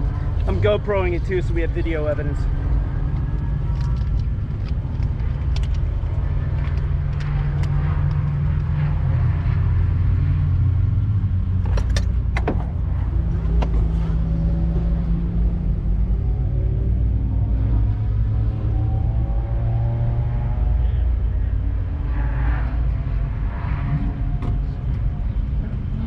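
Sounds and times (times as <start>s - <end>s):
car engine humming: 0.0s - 26.0s
sharp clicks and rattles: 3.0s - 8.8s, 11.6s - 12.8s.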